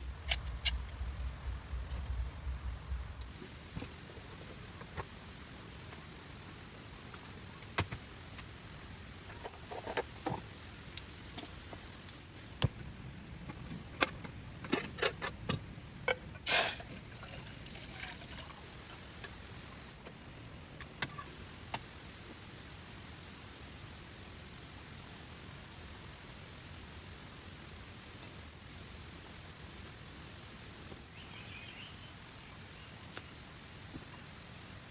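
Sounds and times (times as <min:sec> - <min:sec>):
heavy rain hissing: 0:00.0 - 0:09.2, 0:12.2 - 0:22.1.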